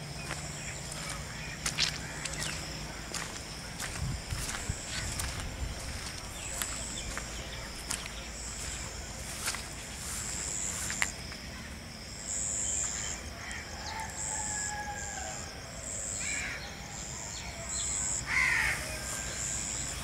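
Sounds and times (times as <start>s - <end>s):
birds calling: 0.0s - 11.7s.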